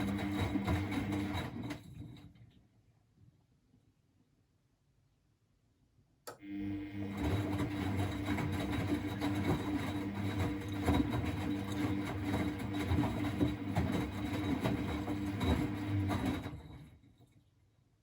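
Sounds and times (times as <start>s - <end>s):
washing machine running: 0.0s - 2.4s, 6.4s - 17.2s.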